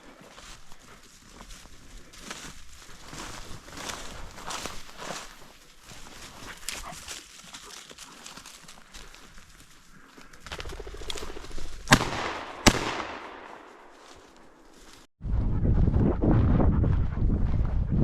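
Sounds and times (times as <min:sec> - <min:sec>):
shotgun shots with echo: 0:11.9 - 0:13.8
wind buffeting microphone: 0:15.2 - 0:18.0.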